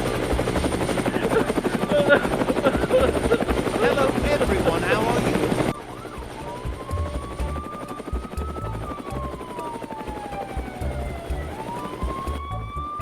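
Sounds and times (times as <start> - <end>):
low uneven thudding: 0.0 - 13.0
siren wailing: 0.0 - 13.0.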